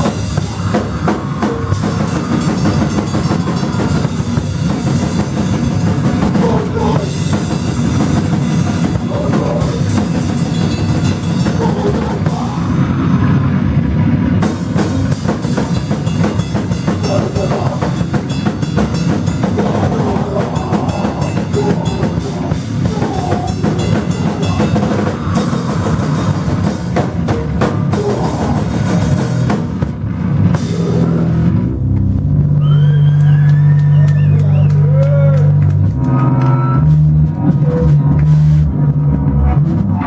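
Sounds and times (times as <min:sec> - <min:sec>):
live band playing loudly: 0:00.0 - 0:12.8, 0:14.4 - 0:31.6
low drone: 0:00.0 - 0:34.7
drum kit pounding: 0:00.0 - 0:40.0.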